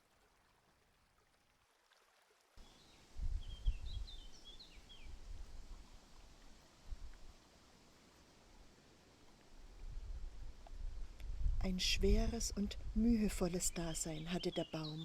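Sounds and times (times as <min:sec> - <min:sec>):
bird chirping: 0:02.6 - 0:05.2, 0:13.7 - 0:15.0.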